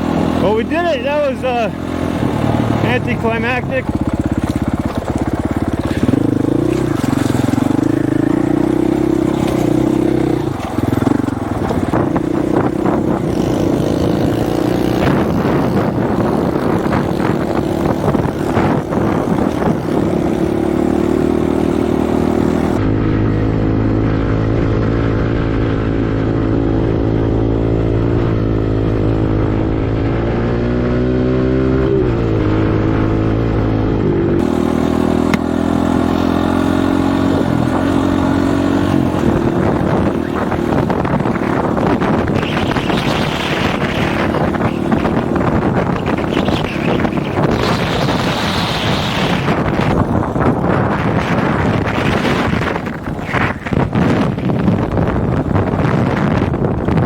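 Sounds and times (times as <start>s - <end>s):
dirt bike engine running: 0.0s - 57.0s
wind noise on microphone: 0.0s - 57.0s.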